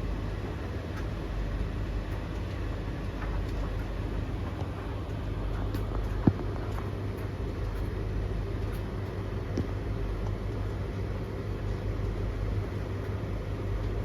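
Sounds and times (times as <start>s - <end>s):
tumble dryers humming: 0.0s - 14.0s.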